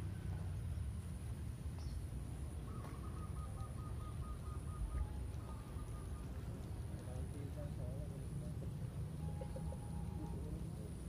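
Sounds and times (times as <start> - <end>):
faint high whine: 8.1 - 11.0.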